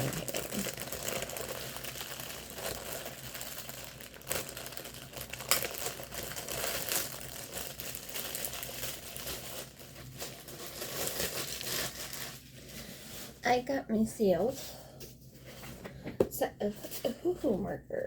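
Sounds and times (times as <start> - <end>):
packaging crinkling: 0.0 - 13.4.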